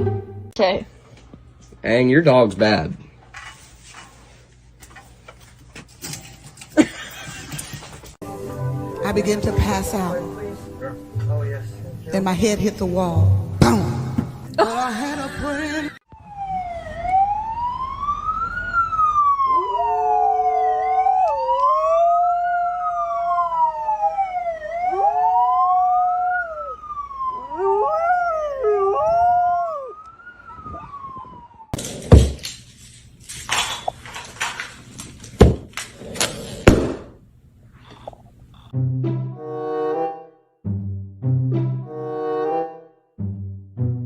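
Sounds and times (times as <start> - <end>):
siren wailing: 16.0 - 31.8
dog howling: 19.4 - 23.8, 27.4 - 31.0
loud sharp knocks: 36.6 - 37.2.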